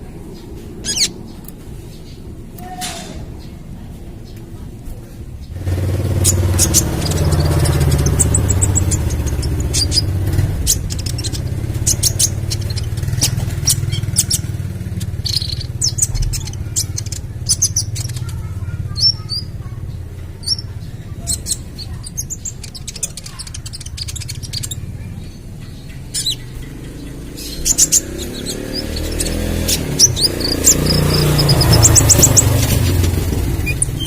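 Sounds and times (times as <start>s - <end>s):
bird chirping and trilling: 0.2s - 4.4s, 5.4s - 34.0s
steady low rumble: 3.2s - 28.6s.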